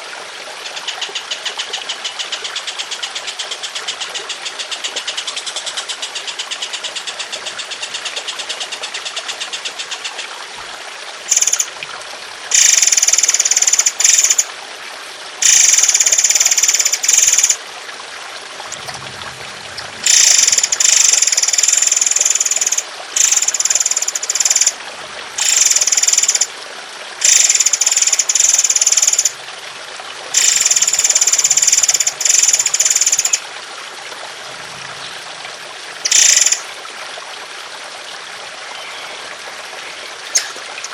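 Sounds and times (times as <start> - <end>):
water trickling: 0.0 - 40.9
bird rattling trill: 11.3 - 11.7, 20.0 - 24.8, 40.2 - 40.9.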